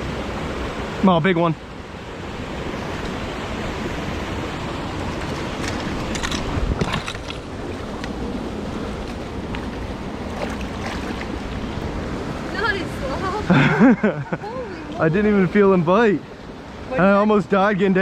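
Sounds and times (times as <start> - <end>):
creek water running: 0.0 - 18.0
sharp knocks or splashes: 5.2 - 7.8.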